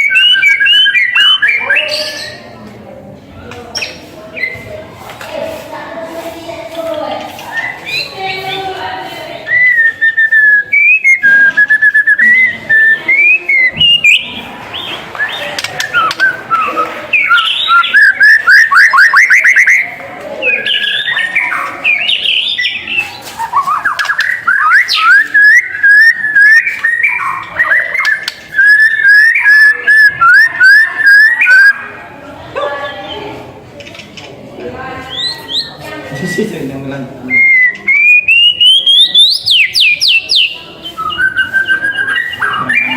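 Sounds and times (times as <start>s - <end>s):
bird singing whistled phrases: 0.0s - 2.4s, 9.5s - 31.9s, 37.3s - 42.9s.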